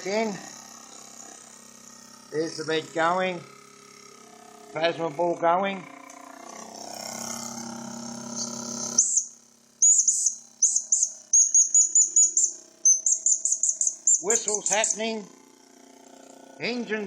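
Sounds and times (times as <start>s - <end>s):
quick high rising chirps: 8.3s - 15.0s
steady whistle with hiss: 8.4s - 14.8s.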